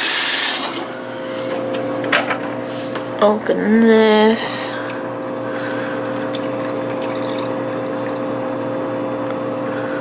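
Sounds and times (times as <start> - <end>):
constant hum: 0.5 - 10.0
water running into reservoir: 4.7 - 9.2.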